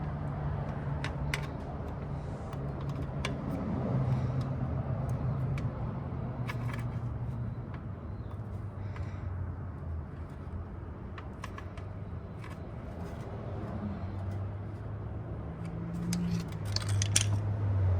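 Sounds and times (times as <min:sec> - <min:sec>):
tools clicking and tapping: 0:15.6 - 0:17.4.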